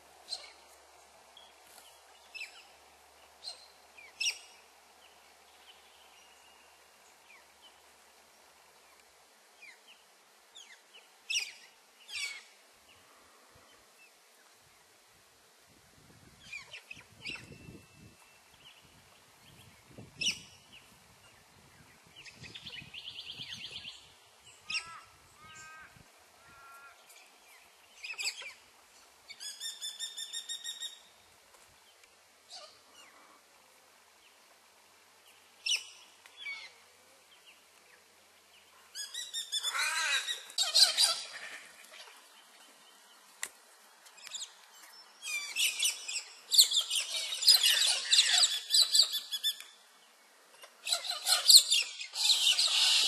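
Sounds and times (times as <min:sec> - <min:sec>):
birds trilling and whistling: 0:39.0 - 0:42.3, 0:45.2 - 0:49.6, 0:50.6 - 0:53.0.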